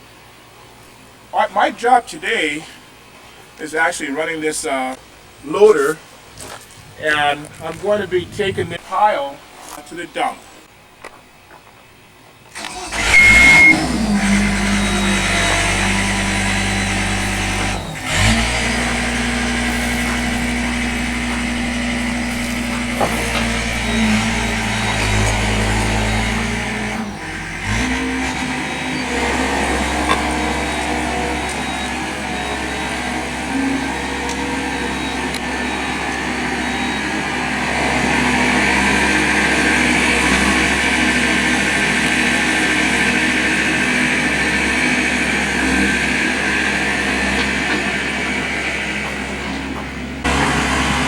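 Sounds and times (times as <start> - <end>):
loader engine running: 12.5 - 51.0.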